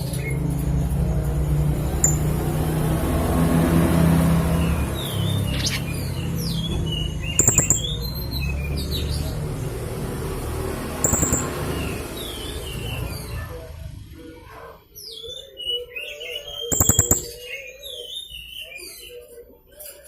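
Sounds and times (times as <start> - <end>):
parrot chirping: 4.6 - 9.0, 11.0 - 13.3, 16.5 - 17.4.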